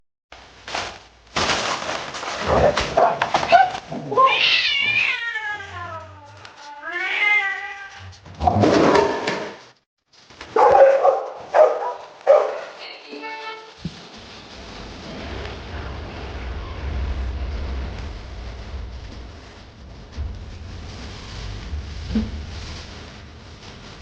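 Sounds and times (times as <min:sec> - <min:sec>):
cat yowling meows: 0:03.5 - 0:08.1
harsh noisy bursts: 0:13.7 - 0:24.0.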